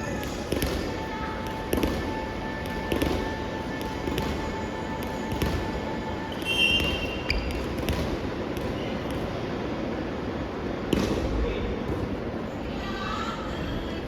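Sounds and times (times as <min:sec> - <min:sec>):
hall noise: 0:00.0 - 0:14.0
volleyball hits: 0:00.2 - 0:01.0, 0:06.4 - 0:09.3.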